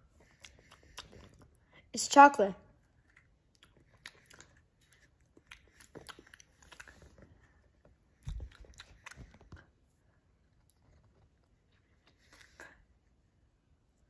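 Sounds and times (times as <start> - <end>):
person chewing candy: 0.0 - 1.8, 2.8 - 13.1
mouth clicks and crackles: 0.2 - 1.8, 2.8 - 9.8.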